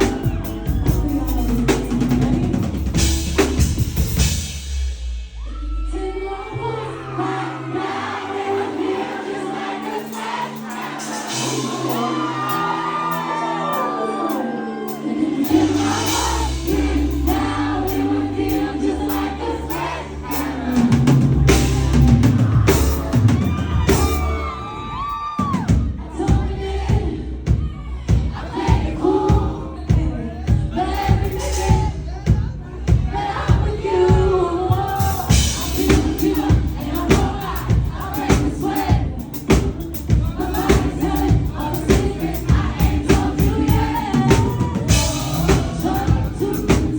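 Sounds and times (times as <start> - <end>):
steady drum beat: 0.0 - 5.5, 9.9 - 13.3, 14.9 - 24.6, 25.4 - 46.9
amplified pop music: 0.0 - 46.9
person singing: 5.6 - 24.8
audience shouts: 10.1 - 16.6, 22.0 - 26.0.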